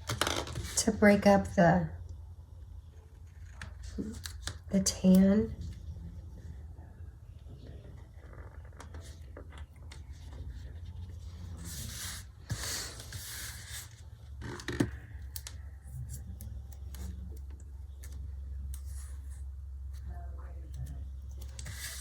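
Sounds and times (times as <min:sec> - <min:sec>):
low steady hum: 0:00.0 - 0:22.0
paper rustling and scraping: 0:09.9 - 0:14.0, 0:21.4 - 0:22.0.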